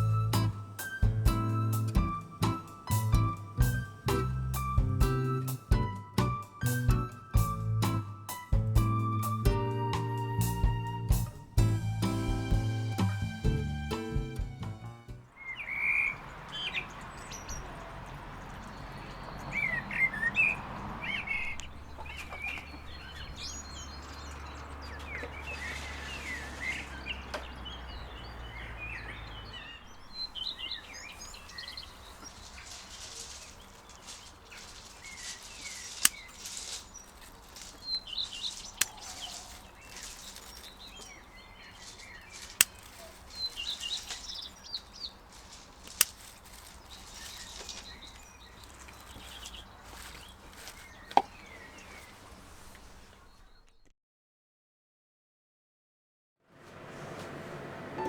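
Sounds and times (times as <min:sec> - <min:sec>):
small birds chirping: 0:00.0 - 0:14.5, 0:15.2 - 0:53.9
sharp clicks: 0:32.2 - 0:50.2.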